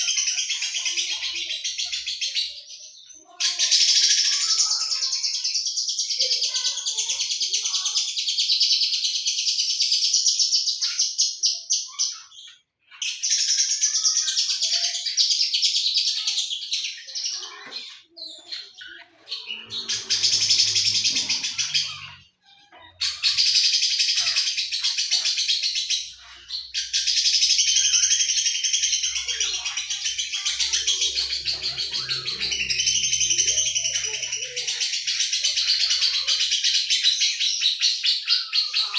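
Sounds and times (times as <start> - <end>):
lovebird fast high chatter: 0.0 - 12.3, 13.0 - 37.6.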